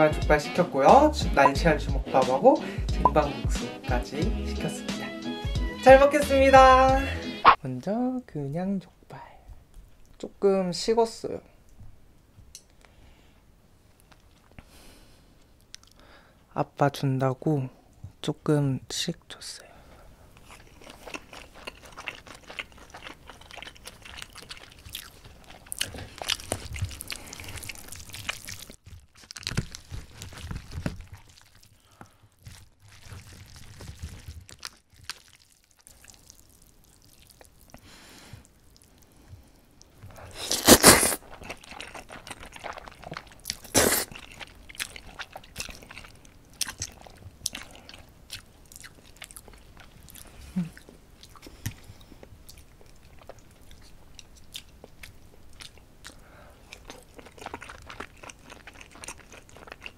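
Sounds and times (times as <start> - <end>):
close chewing and biting: 20.3 - 59.9.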